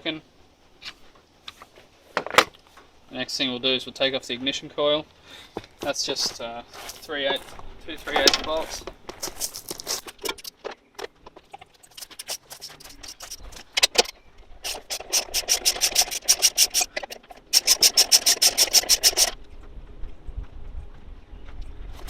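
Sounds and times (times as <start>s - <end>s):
rapid ratchet clicks: 14.6s - 19.4s.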